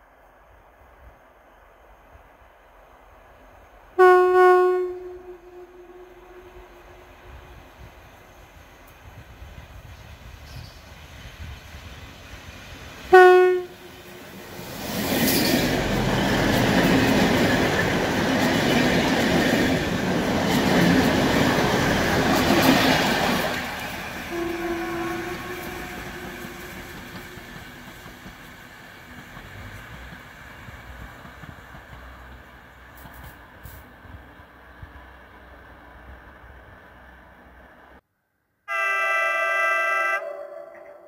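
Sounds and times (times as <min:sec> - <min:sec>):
train wheels rumbling on track: 0:00.0 - 0:38.0
train horn blast: 0:04.0 - 0:07.6, 0:13.1 - 0:14.2, 0:24.2 - 0:27.5, 0:38.7 - 0:41.0.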